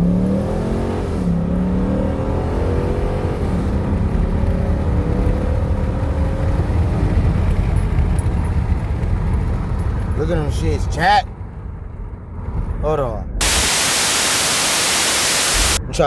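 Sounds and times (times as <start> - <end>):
car engine accelerating: 0.0 - 12.8
low road rumble: 0.0 - 16.0.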